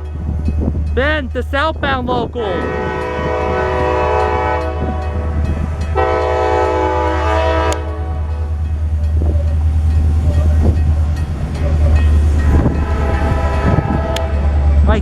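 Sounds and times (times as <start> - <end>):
train rumbling: 0.0 - 15.0
locomotive horn blasts: 2.4 - 8.5, 10.3 - 14.6.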